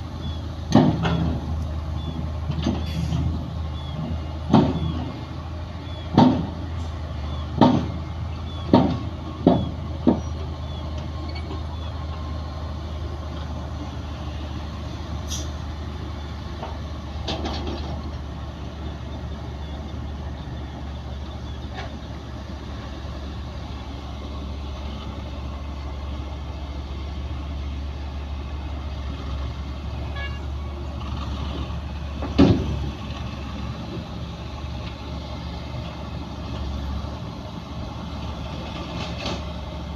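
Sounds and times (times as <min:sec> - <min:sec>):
diesel machinery droning: 0:00.0 - 0:39.9
loud knocks: 0:06.1 - 0:06.6, 0:07.6 - 0:08.0, 0:08.7 - 0:10.3.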